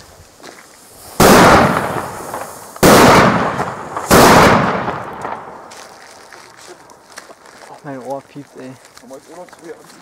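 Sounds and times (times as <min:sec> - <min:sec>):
loud firework bangs echoing: 0:01.0 - 0:06.0.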